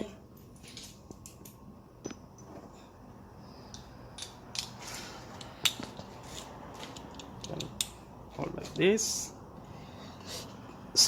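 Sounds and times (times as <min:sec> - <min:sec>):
metal tools clicking: 0:03.7 - 0:08.1.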